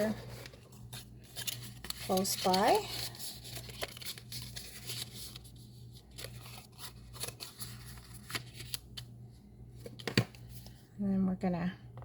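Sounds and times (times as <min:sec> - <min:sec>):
paper rustling: 0:00.0 - 0:09.0
low steady hum: 0:00.0 - 0:12.0.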